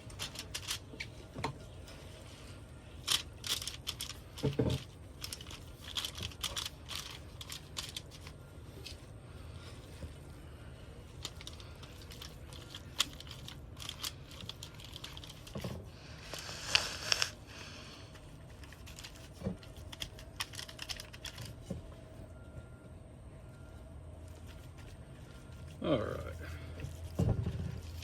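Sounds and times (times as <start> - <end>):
crinkling rustle: 0.0 - 21.9.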